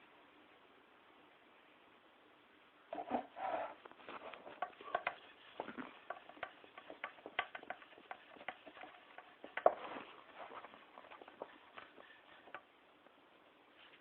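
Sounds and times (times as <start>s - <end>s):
rubbing sounds: 2.9s - 12.8s
light clicks and taps on pot: 4.4s - 5.3s, 6.0s - 9.7s.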